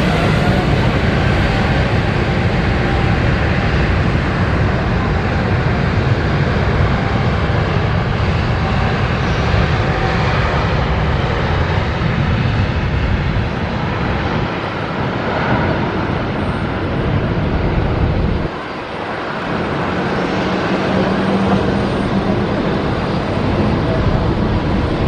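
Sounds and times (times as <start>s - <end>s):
jet engines running: 0.0s - 25.0s
wind rumbling on microphone: 0.0s - 25.0s.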